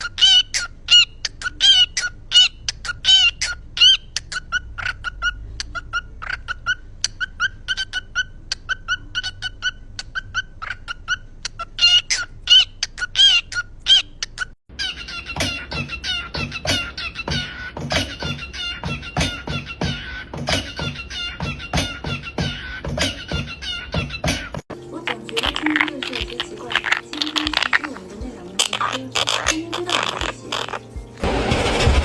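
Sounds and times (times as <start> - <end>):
parrot squawking: 0.0 - 31.2.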